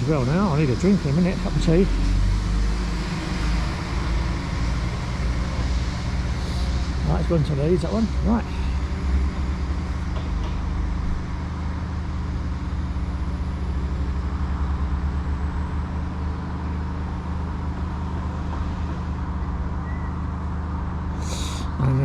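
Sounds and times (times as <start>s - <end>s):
train engine humming: 0.0s - 22.0s.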